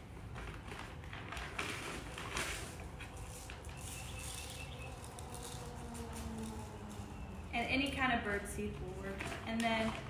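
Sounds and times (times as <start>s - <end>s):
birdseed pouring into bowl: 2.0s - 7.5s.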